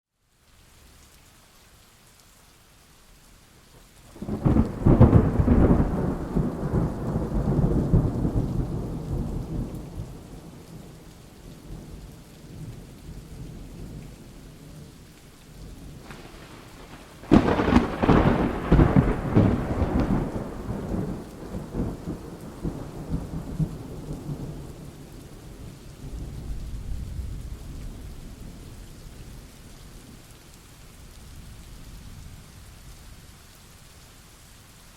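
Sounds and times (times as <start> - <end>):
rain falling: 0.1 - 34.9
thunder: 4.2 - 10.6, 15.9 - 24.9.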